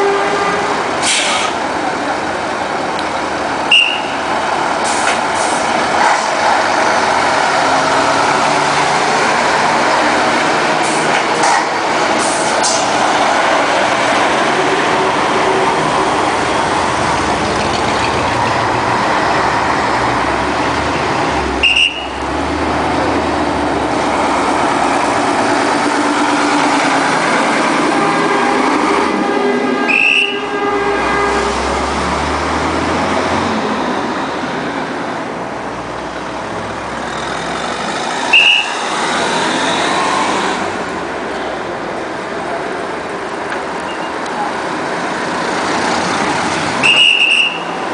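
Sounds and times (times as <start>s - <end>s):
truck diesel engines running: 0.0s - 47.9s
high-pitched horn toots: 27.8s - 32.0s.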